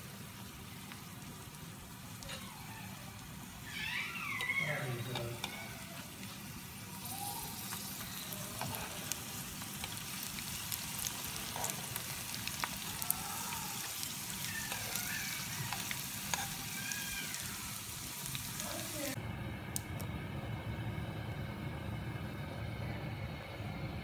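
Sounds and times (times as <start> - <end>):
samosas sizzling in oil: 0.0 - 19.2.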